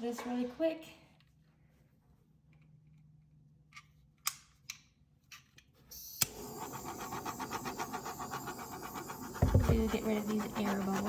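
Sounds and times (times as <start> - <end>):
torch flame hissing: 6.0 - 11.0.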